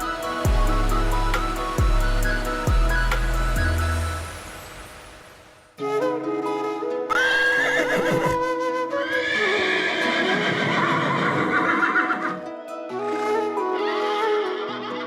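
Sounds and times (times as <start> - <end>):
background music: 0.0 - 15.0
animal wavering call: 7.1 - 12.4.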